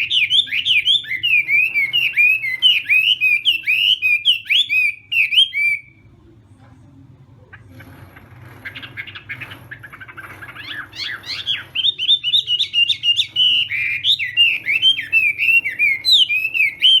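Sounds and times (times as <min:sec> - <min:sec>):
bird twittering: 0:00.0 - 0:06.0, 0:07.5 - 0:17.0
bird whistling phrases: 0:00.0 - 0:06.0, 0:09.9 - 0:17.0.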